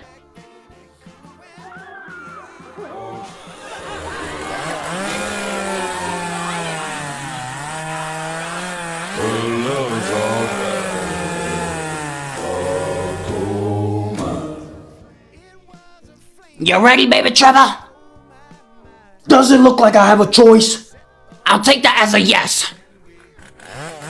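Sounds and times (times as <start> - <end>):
chainsaw revving: 2.3 - 15.3, 23.1 - 24.0.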